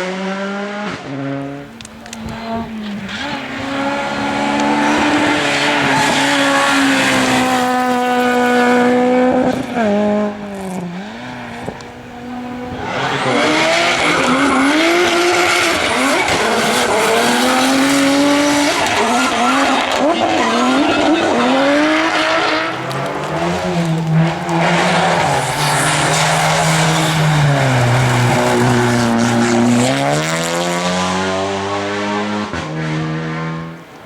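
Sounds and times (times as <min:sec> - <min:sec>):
race car engine accelerating: 0:00.0 - 0:33.9.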